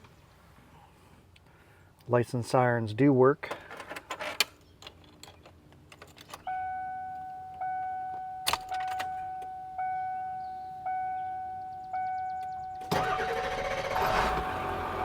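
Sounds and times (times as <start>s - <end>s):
dashboard warning chime dinging: 6.4s - 12.9s.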